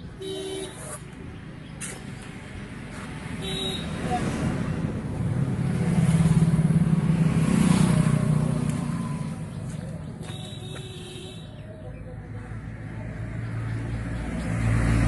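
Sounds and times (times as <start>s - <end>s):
diesel engine chugging past: 4.1s - 10.2s.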